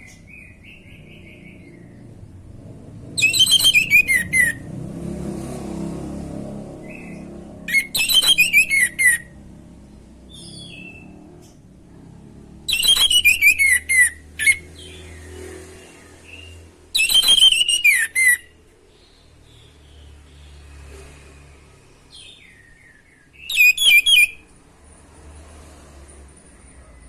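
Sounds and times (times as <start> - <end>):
thrush singing whistled phrases: 3.2 - 4.7, 7.0 - 9.4, 12.7 - 14.9, 16.3 - 18.5, 22.8 - 24.4.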